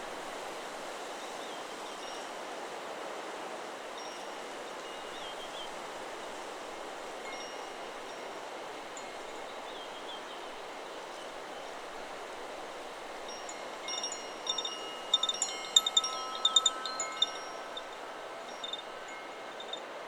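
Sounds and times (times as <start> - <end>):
wind rustling trees: 0.0 - 20.0
wind chime ringing: 13.2 - 19.9.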